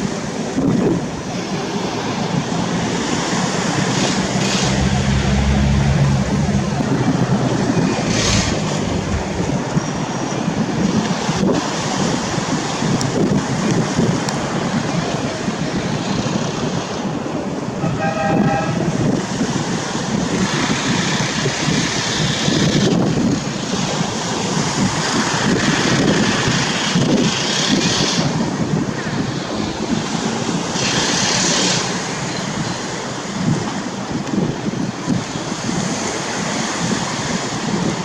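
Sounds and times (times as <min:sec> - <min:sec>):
aircraft engines roaring: 0:00.0 - 0:38.0
wind on microphone: 0:00.0 - 0:38.0
short horn-like tone: 0:17.8 - 0:19.0.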